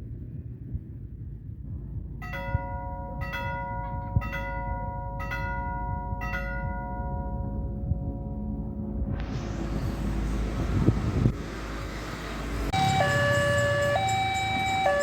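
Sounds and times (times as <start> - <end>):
level-crossing warning bell: 2.2 - 7.7, 12.7 - 15.0.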